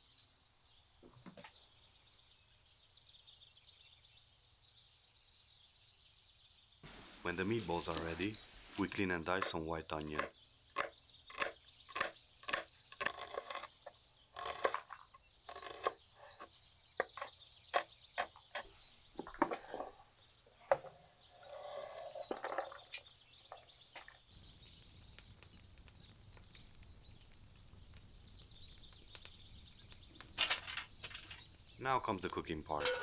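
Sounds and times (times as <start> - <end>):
outdoor background noise: 0.0 - 33.0
birds chirping: 6.8 - 33.0
knife chopping onion on board: 10.2 - 13.7, 15.5 - 18.7.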